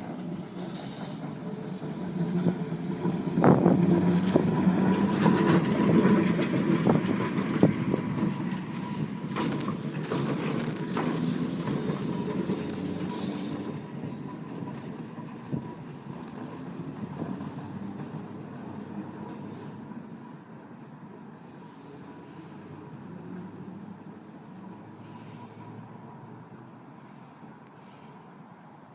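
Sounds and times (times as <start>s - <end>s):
electric tram humming: 0.0s - 28.9s.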